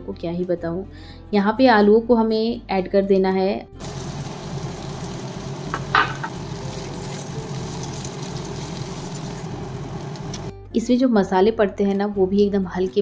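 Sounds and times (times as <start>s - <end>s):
potatoes sizzling in a frying pan: 3.8s - 10.5s.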